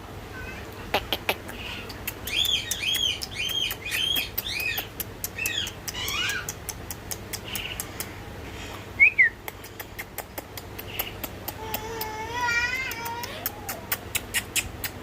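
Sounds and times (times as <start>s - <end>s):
parakeet calls: 0.9s - 6.6s
sharp ticking patter: 1.8s - 8.2s, 9.4s - 11.9s.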